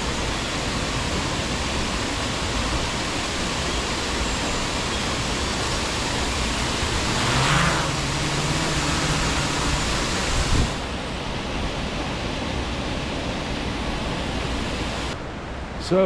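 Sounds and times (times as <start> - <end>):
waterfall rushing: 0.0 - 15.2.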